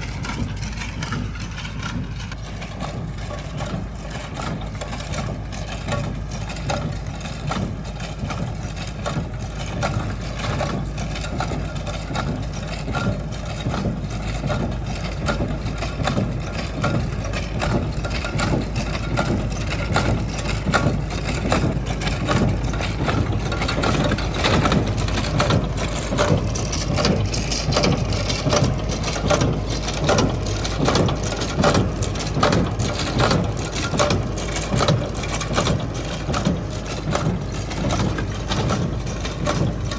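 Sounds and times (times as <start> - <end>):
hay machinery clattering: 0.0 - 39.9
tractor engine running: 0.0 - 39.9.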